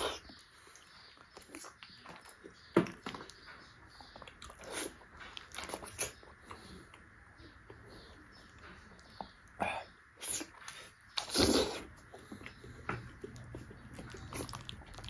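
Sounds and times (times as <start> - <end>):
biting and chewing fruit: 0.0 - 15.0.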